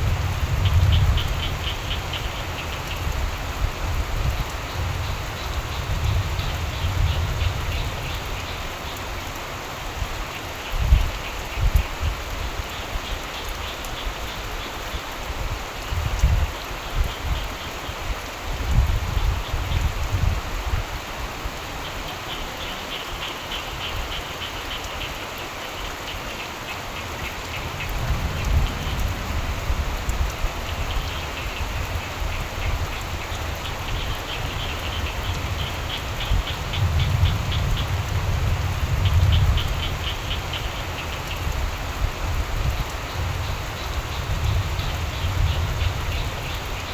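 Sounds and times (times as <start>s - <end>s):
steady rain falling: 0.0s - 46.9s
frogs calling in pulsing trills: 0.5s - 3.3s, 21.8s - 42.0s, 42.6s - 46.9s
distant thunder rumbling: 26.9s - 41.3s.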